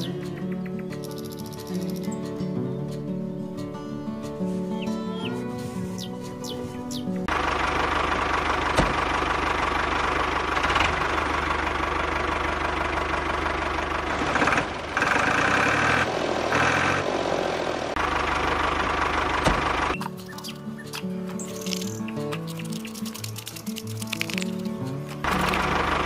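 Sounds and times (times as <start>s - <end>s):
diesel engine chugging: 6.0s - 22.1s, 25.1s - 26.0s.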